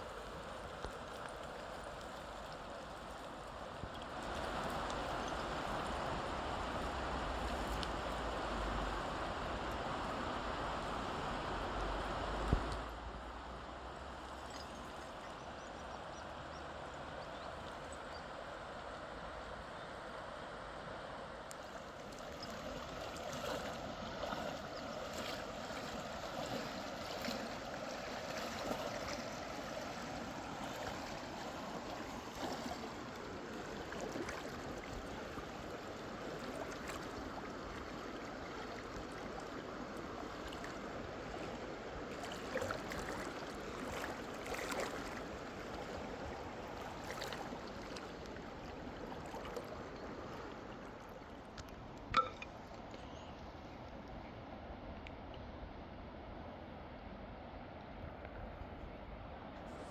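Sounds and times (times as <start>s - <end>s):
faint knocks or splashes: 42.2s - 45.9s, 51.5s - 53.1s.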